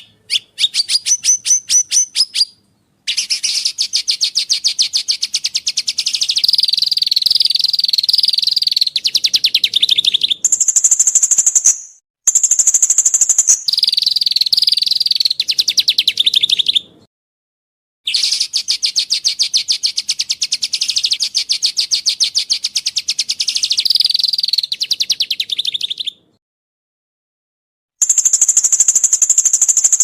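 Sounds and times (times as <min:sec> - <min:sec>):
songbird trilling: 0:00.0 - 0:16.8.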